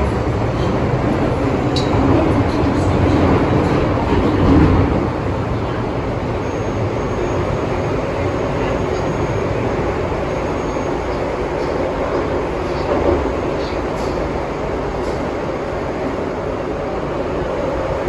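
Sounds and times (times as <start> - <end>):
rumble of train wheels on rail: 0.0 - 18.0.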